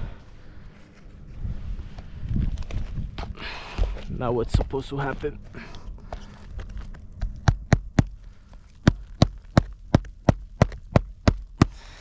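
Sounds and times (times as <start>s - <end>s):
hammer driving nail through shingle: 8.8s - 11.8s.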